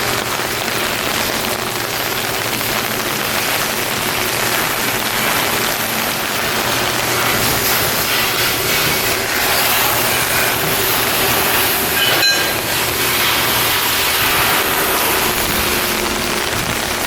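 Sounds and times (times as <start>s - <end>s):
steady rushing noise: 0.0s - 17.0s
low hum: 11.3s - 17.0s
metallic clank: 11.8s - 12.9s.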